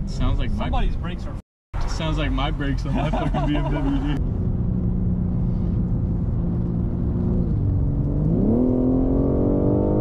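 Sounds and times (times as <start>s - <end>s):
car engine accelerating: 3.1s - 10.0s.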